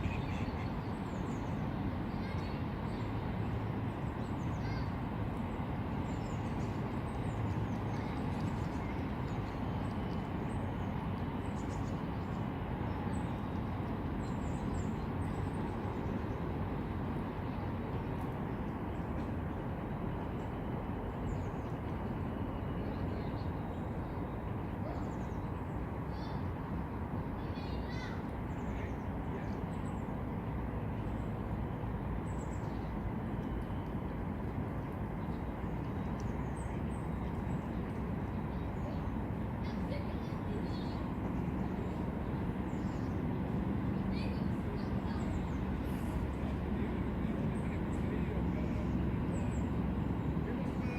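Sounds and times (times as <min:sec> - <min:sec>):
small birds chirping: 0:00.0 - 0:16.5, 0:35.1 - 0:50.9
steady low rumble: 0:00.0 - 0:50.9.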